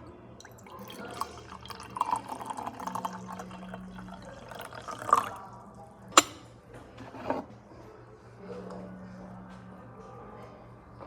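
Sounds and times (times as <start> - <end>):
water running: 0.4 - 6.3
cups and dishes clinking: 0.4 - 7.5.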